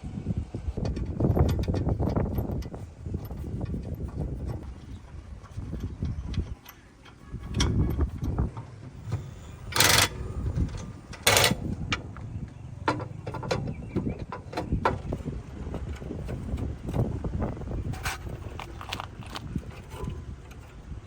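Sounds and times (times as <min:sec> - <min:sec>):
metallic clicks and knocks: 0:00.8 - 0:17.3.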